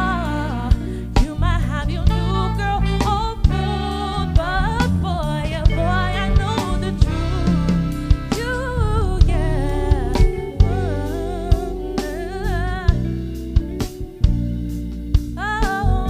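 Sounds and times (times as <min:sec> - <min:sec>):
live band playing soul ballad: 0:00.0 - 0:16.0.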